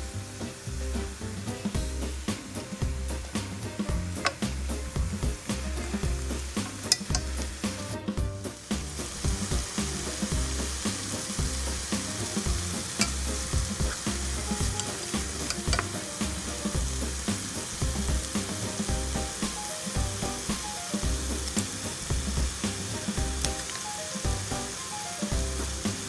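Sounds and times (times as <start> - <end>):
background music: 0.0 - 26.0
chicken sizzling in oil: 0.0 - 26.0
wooden spoon tapping scraping pot: 12.9 - 16.0.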